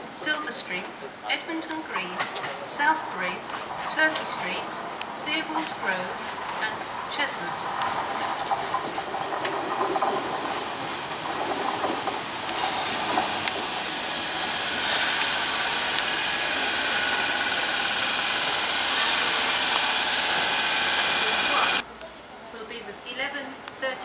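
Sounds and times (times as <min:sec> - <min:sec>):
train wheels on rails: 0:00.0 - 0:21.9
air brakes hissing: 0:12.5 - 0:21.8.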